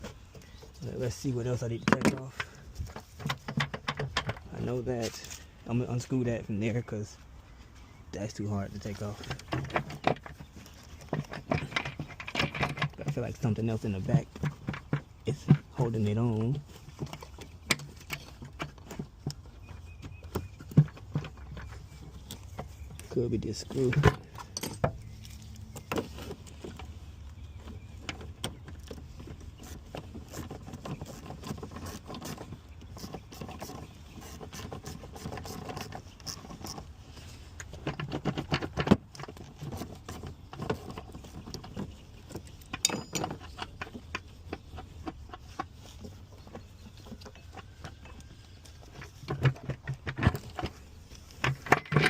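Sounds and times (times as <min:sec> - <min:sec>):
tools clicking and clinking: 0:23.9 - 0:25.0, 0:42.7 - 0:44.0.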